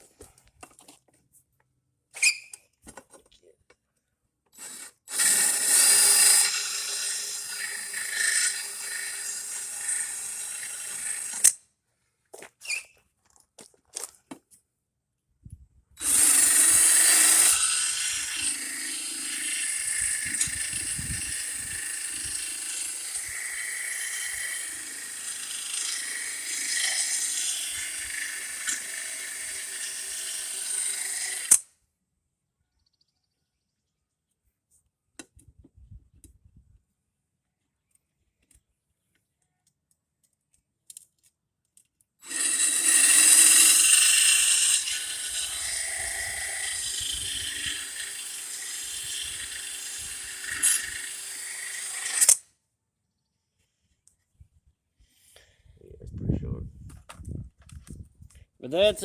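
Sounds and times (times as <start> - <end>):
power drill grinding metal blade: 4.6 - 11.6, 16.0 - 31.7, 42.2 - 52.5.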